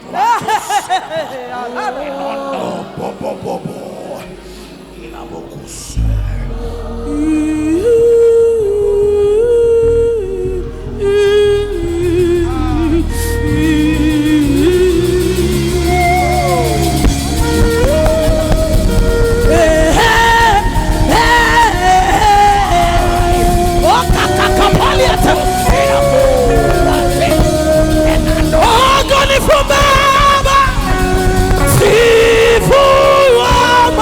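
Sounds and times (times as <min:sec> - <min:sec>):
woman singing wordless notes: 0:00.0 - 0:34.0
keyboard-led band: 0:10.6 - 0:34.0.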